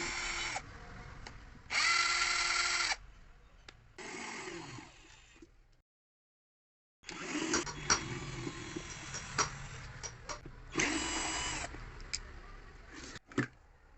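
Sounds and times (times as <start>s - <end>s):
cordless drill motor whirring: 0.0s - 0.6s, 1.7s - 3.0s, 4.0s - 5.4s, 7.0s - 9.8s, 10.7s - 11.7s.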